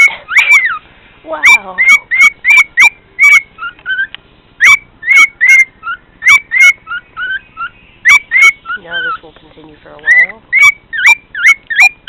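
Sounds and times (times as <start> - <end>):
cockatiel whistling: 0.0 - 0.8, 1.4 - 9.2, 10.0 - 12.0.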